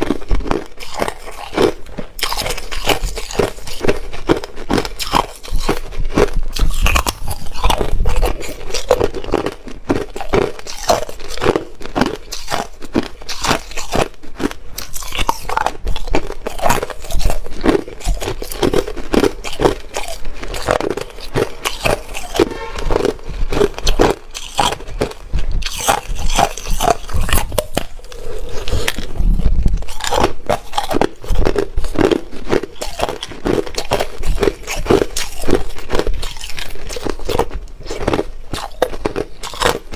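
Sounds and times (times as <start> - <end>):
chewing crunching ice: 0.0 - 39.9.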